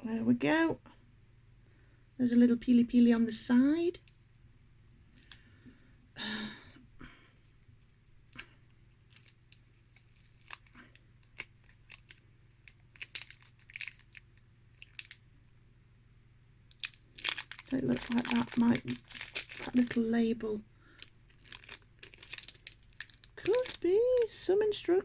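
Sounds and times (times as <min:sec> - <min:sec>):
packaging crinkling and tearing: 0:07.3 - 0:15.2, 0:16.7 - 0:20.3, 0:20.9 - 0:24.4.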